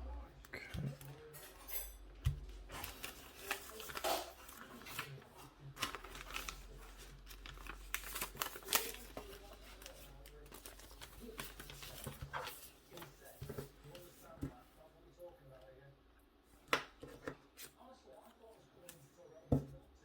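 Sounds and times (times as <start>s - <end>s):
plastic packaging crinkling: 2.2s - 14.1s.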